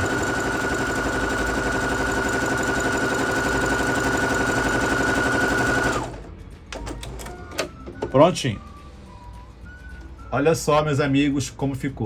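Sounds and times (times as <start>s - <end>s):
sewing machine stitching: 0.0s - 7.7s.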